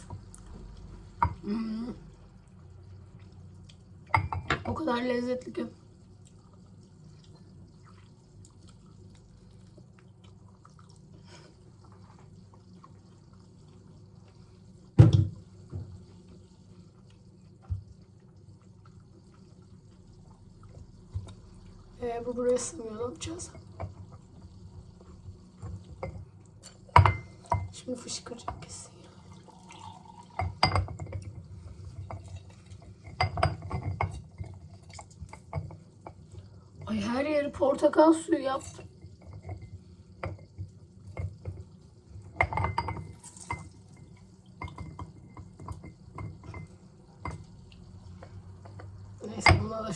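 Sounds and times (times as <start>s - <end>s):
juice splashing: 5.7s - 15.0s, 24.1s - 33.2s.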